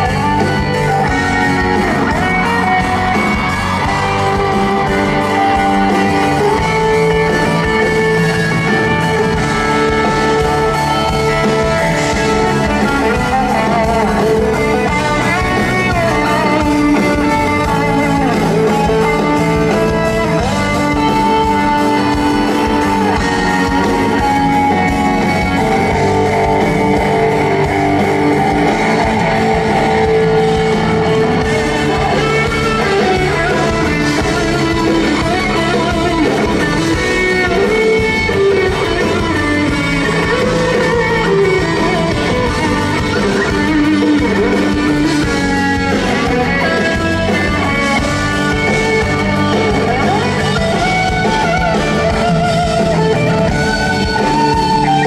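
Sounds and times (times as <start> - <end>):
live band music led by guitar: 0.0 - 55.0.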